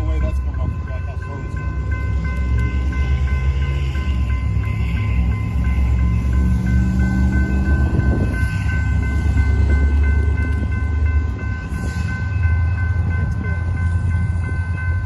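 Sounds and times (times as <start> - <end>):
crossing signal bell ringing: 0.0 - 15.0
freight train rumbling: 0.0 - 15.0.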